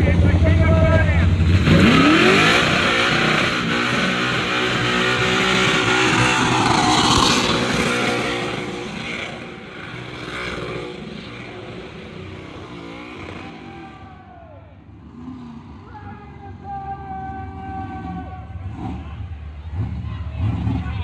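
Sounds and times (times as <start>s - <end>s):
car engine revving: 0.0s - 14.1s, 17.0s - 21.0s
tyre noise: 5.2s - 9.4s.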